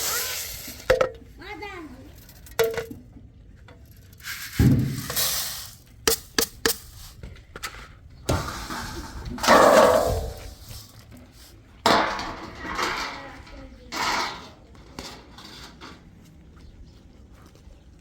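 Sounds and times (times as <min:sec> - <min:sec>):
pots and utensils knocking: 0:00.9 - 0:01.2
clattering scrape: 0:03.8 - 0:16.1.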